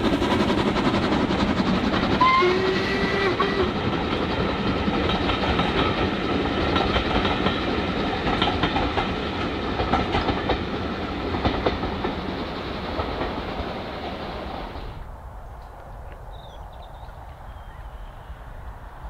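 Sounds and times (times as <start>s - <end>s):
wheels clicking over rail joints: 0.0s - 14.8s
low train rumble: 0.0s - 19.0s.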